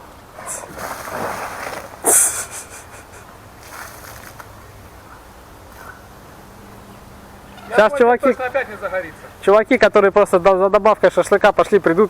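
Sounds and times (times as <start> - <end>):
water hissing on hot embers: 0.4 - 4.7.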